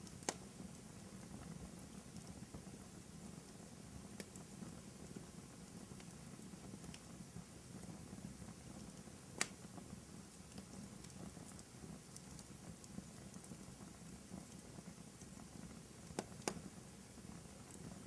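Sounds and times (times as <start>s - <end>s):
faint fire crackles: 0.0s - 18.0s
fire flames rumbling: 0.0s - 18.0s
fire popping sharply: 8.1s - 18.0s.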